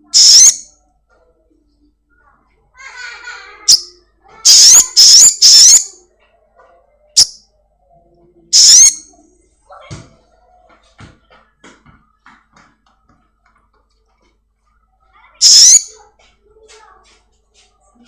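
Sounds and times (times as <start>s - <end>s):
songbird shrill calls: 0.1s - 0.6s, 4.5s - 5.9s, 8.6s - 9.0s, 15.4s - 15.9s.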